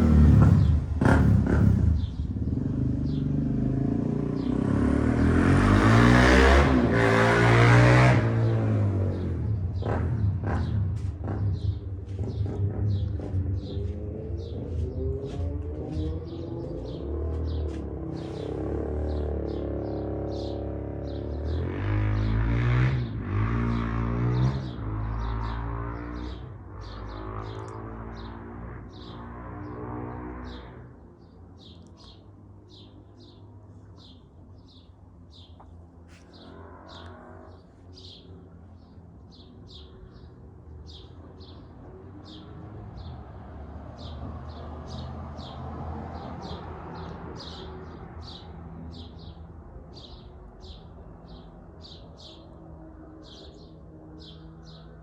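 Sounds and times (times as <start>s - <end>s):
birds chirping: 0.0s - 7.6s, 8.2s - 55.0s
quad bike engine revving: 0.0s - 30.8s.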